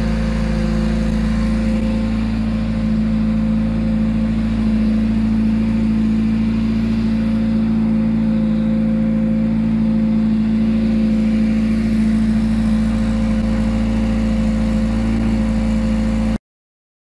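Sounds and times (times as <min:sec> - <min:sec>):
car engine idling: 0:00.0 - 0:16.4.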